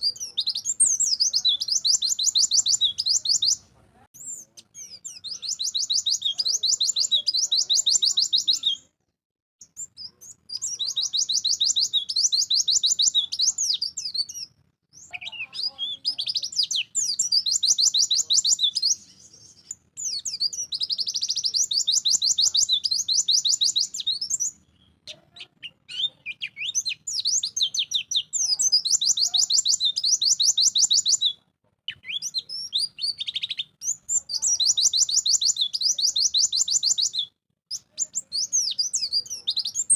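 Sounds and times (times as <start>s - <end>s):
bird twittering trills: 0.0s - 3.6s, 4.2s - 8.8s, 9.6s - 31.3s.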